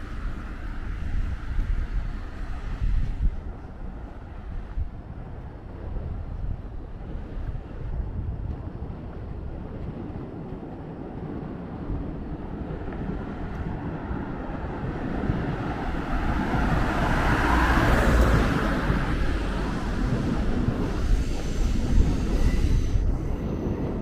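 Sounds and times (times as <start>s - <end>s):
street traffic: 0.0s - 5.8s, 12.2s - 24.0s
wind rumble on microphone: 0.0s - 24.0s
vehicle passing close: 13.2s - 22.1s.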